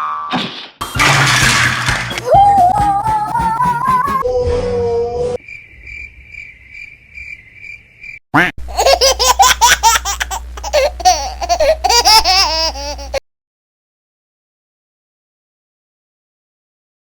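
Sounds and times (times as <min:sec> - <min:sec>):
child laughing loudly: 0:02.2 - 0:04.3, 0:08.6 - 0:13.2
crickets chirping: 0:05.4 - 0:08.2.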